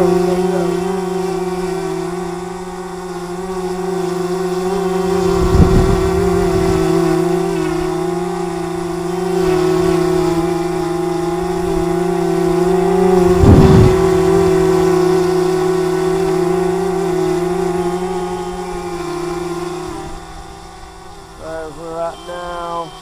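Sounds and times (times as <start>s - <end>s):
drone propellers whining: 0.0s - 23.0s
wind buffeting microphone: 4.7s - 22.0s.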